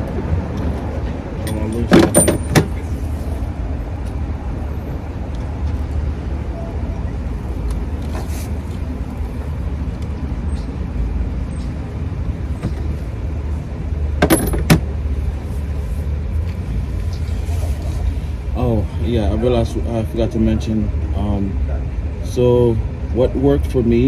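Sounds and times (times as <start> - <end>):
metal hand tools clinking: 1.4 - 2.8, 14.2 - 14.8.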